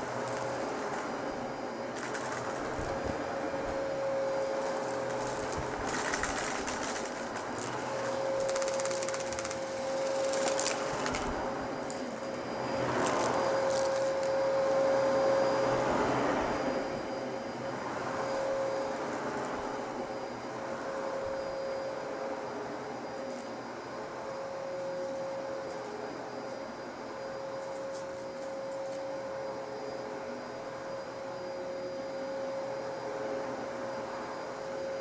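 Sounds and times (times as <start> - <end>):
vacuum cleaner whining: 0.0 - 35.0
debris crackling in vacuum: 1.9 - 14.8.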